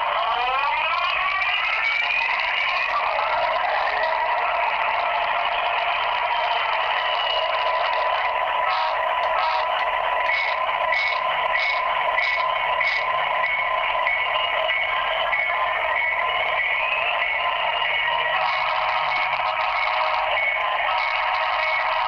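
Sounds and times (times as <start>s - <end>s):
regular pulsing: 0.0s - 22.0s
tinny locomotive drone through phone: 0.0s - 22.0s.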